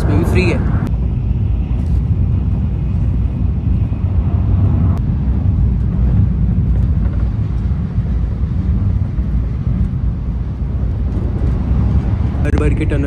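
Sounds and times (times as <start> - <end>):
high speed train rumble inside cabin: 0.0 - 13.0.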